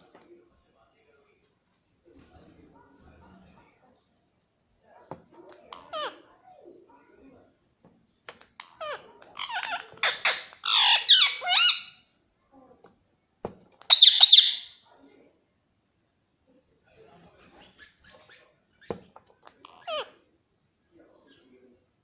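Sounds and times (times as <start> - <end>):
parrot squawking and screeching: 5.7 - 6.3, 8.3 - 12.1, 13.8 - 14.8, 17.5 - 18.9, 19.5 - 20.2.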